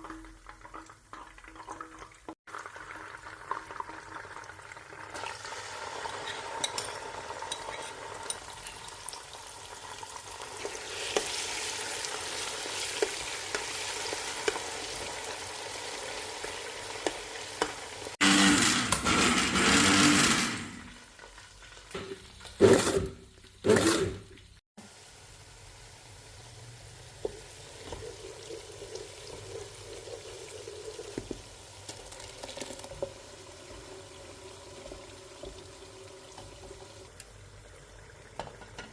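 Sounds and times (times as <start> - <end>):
food sizzling in a pan: 2.1 - 18.2, 24.4 - 38.9.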